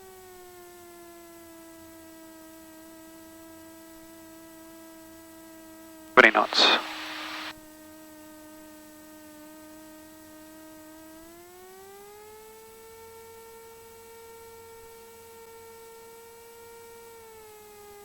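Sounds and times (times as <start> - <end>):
faint aircraft engine hum: 6.2 - 7.5.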